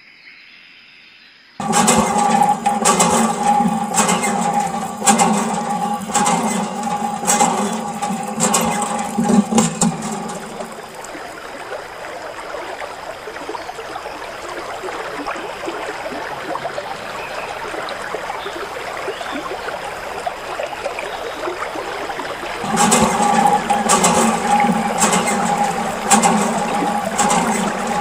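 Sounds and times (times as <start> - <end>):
clicks: 1.6 - 11.2, 22.6 - 28.0
steady hum: 1.6 - 11.2, 22.6 - 28.0.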